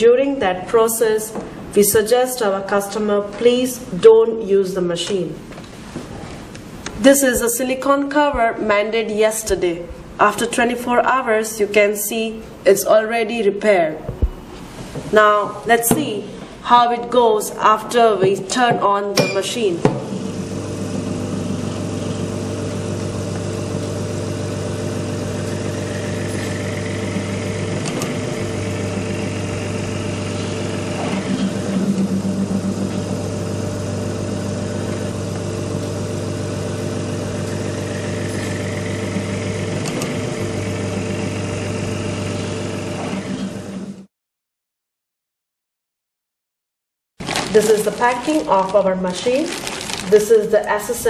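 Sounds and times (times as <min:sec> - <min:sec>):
vacuum pump humming: 0:18.1 - 0:44.1, 0:47.2 - 0:50.9.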